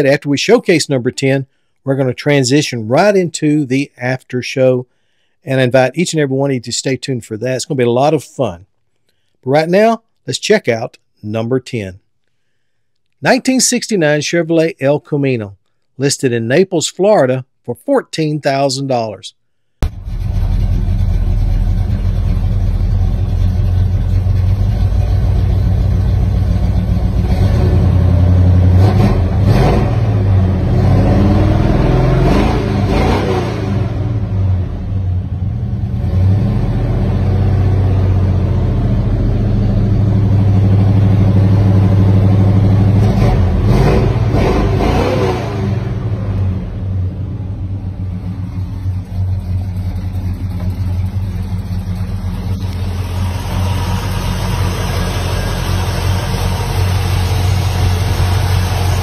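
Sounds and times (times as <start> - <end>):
car engine idling and revving: 19.8 - 59.0.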